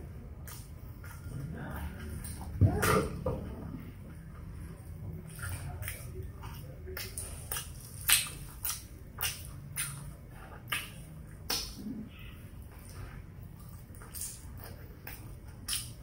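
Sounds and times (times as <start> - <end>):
crunchy chewing: 4.5 - 16.0.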